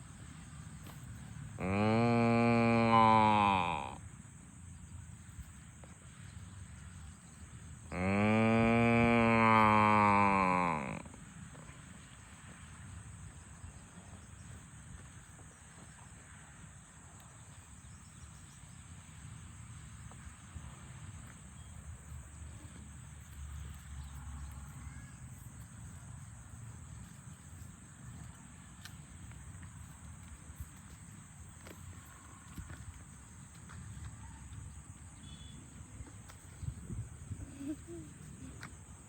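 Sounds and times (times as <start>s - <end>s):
insects droning: 0.0s - 39.0s
low wind rumble: 35.8s - 37.6s.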